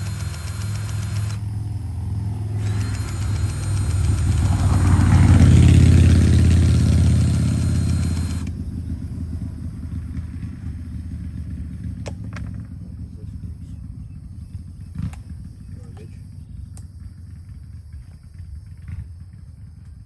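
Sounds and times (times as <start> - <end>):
sharp clicks: 0.0 - 1.6, 2.6 - 8.6, 16.7 - 16.9
high whine: 0.0 - 9.9
skid steer engine running: 0.0 - 20.0.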